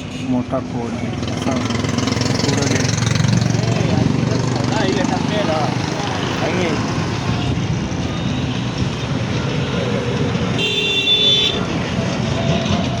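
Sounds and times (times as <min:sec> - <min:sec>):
road traffic noise: 0:00.0 - 0:13.0
vehicle horn: 0:10.5 - 0:11.7.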